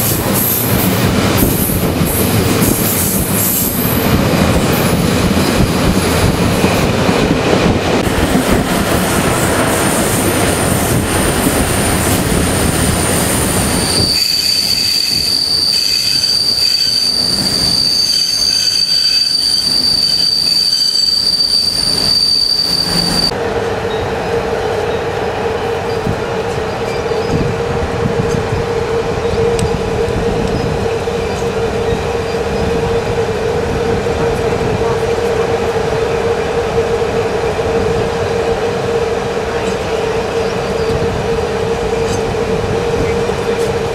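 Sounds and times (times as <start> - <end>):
train running rumble: 0.0 - 43.9
train wheels squealing: 12.8 - 23.3.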